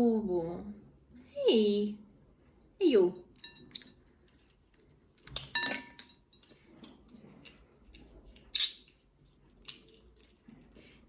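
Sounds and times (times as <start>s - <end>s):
plate clinking: 5.3s - 6.6s.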